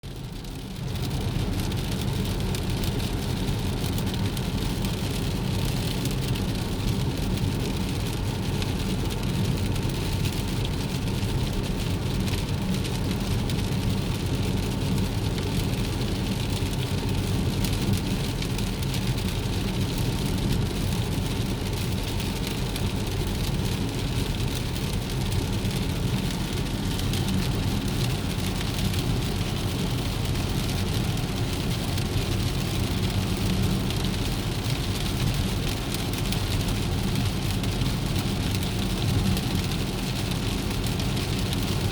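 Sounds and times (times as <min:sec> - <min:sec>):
rain falling: 0:00.1 - 0:41.9
low rumble: 0:17.7 - 0:36.3.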